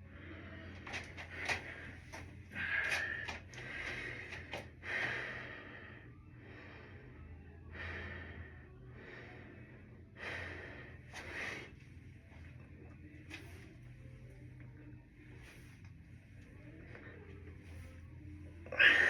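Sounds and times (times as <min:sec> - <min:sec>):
person breathing: 0:00.0 - 0:12.3.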